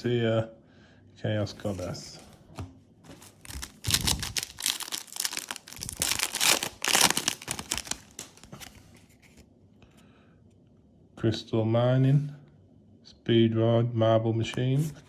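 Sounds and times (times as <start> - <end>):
foil wrapper crinkling and tearing: 3.2 - 8.9.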